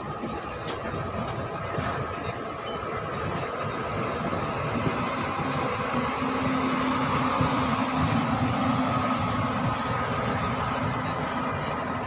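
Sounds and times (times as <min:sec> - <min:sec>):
steady low hum: 0:00.0 - 0:12.0
train running noise inside coach: 0:00.0 - 0:12.0.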